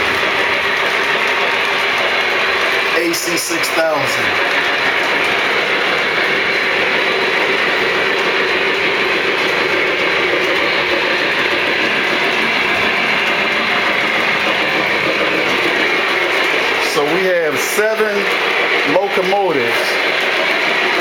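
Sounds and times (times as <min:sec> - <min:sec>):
model train rumbling on track: 0:00.0 - 0:21.0.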